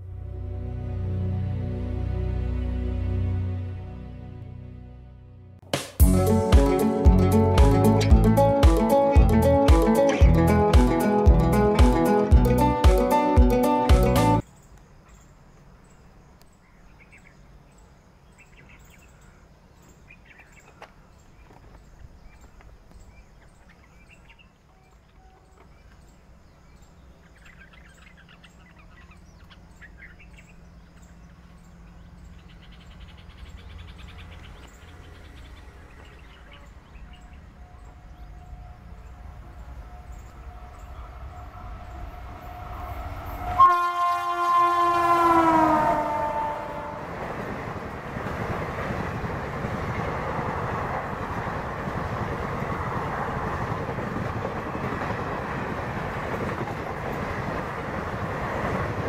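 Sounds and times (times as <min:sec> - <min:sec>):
locomotive rumble: 0:06.0 - 0:14.4, 0:28.2 - 0:59.0
passenger coaches rattling by: 0:25.2 - 0:59.0
train horn: 0:35.8 - 0:47.8.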